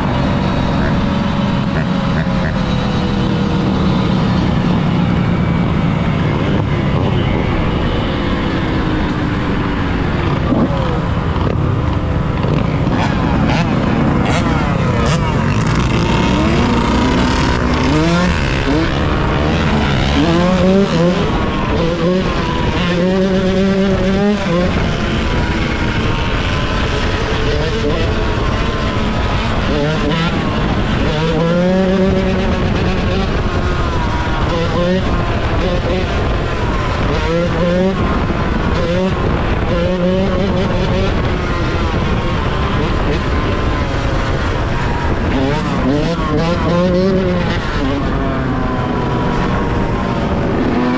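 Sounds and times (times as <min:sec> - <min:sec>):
steady low rumble: 0:00.0 - 0:22.4
two-stroke motorcycle engine revving: 0:00.0 - 0:50.9.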